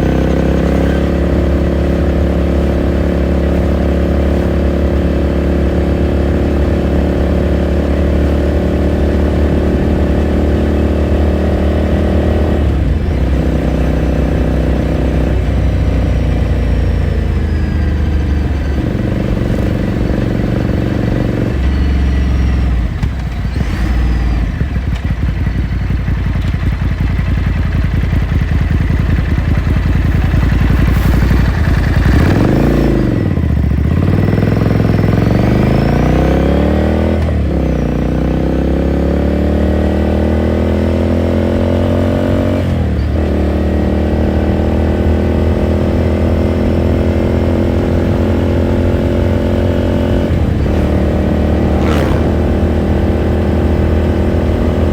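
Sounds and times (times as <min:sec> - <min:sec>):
motorcycle engine running: 0:00.0 - 0:54.9
motorcycle gear changes: 0:50.6 - 0:54.3.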